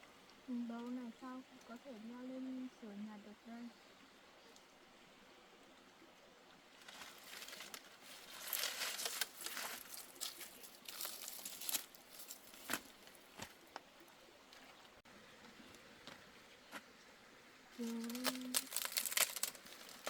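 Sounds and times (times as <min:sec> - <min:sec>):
dry rustling and crackling: 0:06.7 - 0:16.9, 0:17.7 - 0:20.0.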